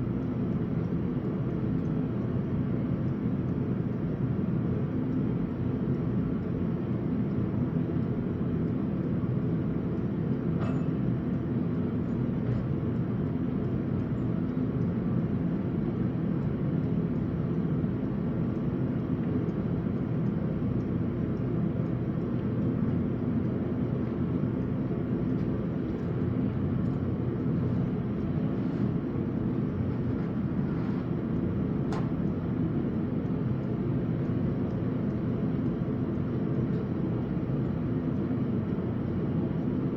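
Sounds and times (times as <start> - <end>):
faint hum: 0.0 - 39.9
faint tick: 16.4 - 39.8.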